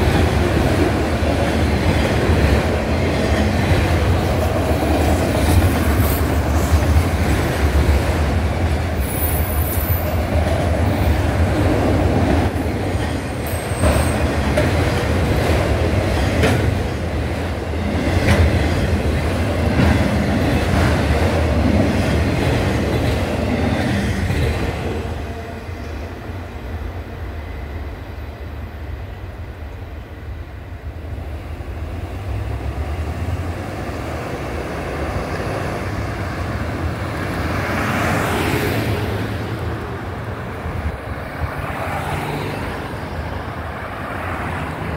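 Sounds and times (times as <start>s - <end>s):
train wheels clattering on rails: 0.0s - 25.2s
high wheel squeals: 9.0s - 10.2s.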